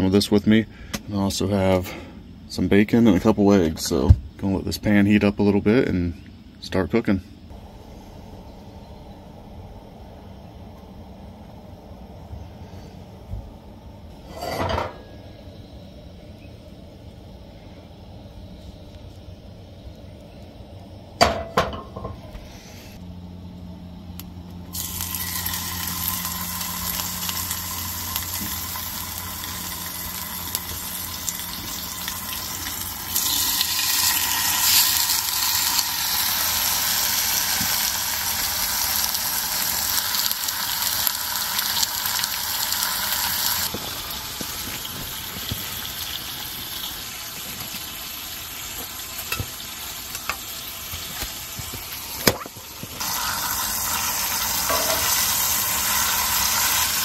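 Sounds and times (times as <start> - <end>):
bacon sizzling in frying pan: 24.7 - 57.0.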